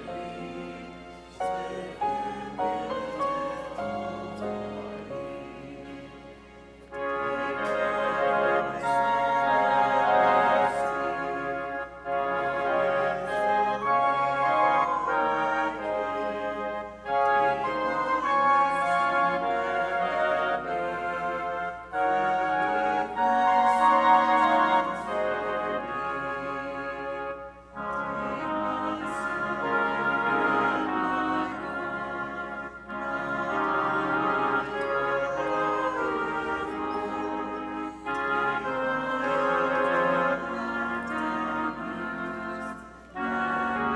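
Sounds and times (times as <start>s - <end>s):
organ playing a hymn: 0.0s - 43.9s.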